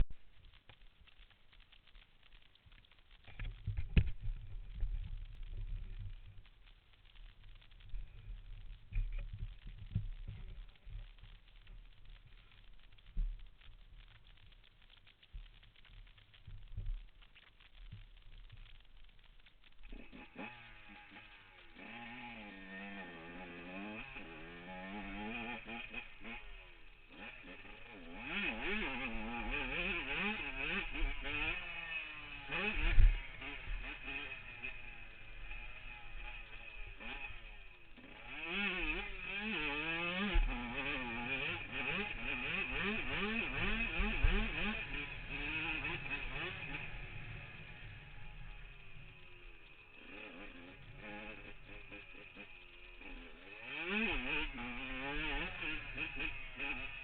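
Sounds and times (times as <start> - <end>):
two-stroke engine revving: 19.8 - 57.0.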